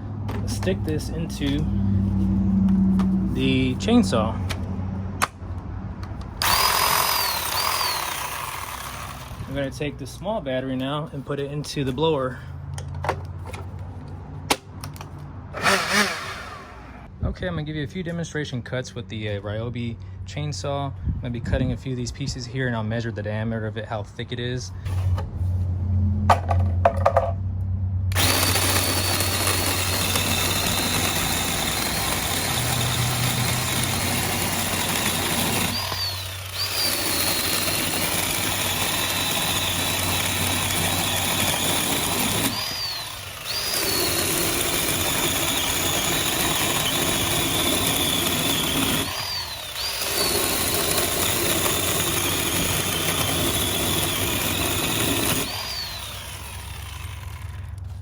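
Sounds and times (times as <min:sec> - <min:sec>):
cordless chainsaw motor whine: 0:00.3 - 0:03.4, 0:06.4 - 0:09.8, 0:15.5 - 0:17.1, 0:28.1 - 0:58.0.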